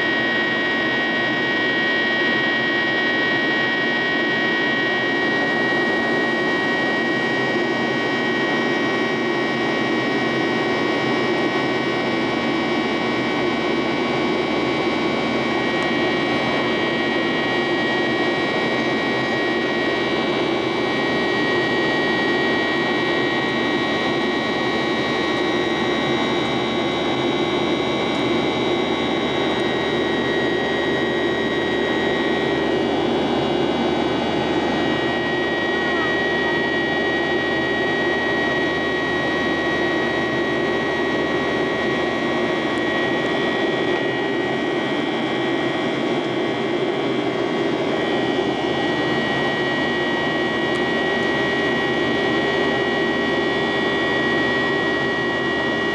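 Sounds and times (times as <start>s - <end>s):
high engine whine: 0.0s - 55.9s
jet engine roar in cabin: 0.0s - 55.9s.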